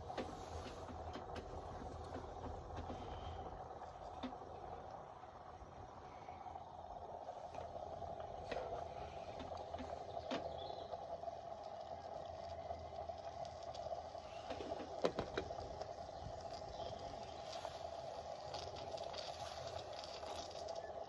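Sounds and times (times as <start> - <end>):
steam engine hissing: 14.2 - 16.4, 17.1 - 20.8.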